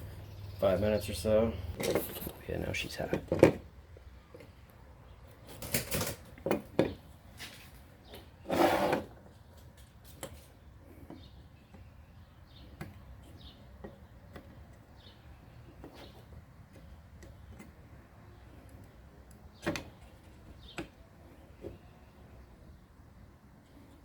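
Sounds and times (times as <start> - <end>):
noisy scrape: 8.4 - 9.1.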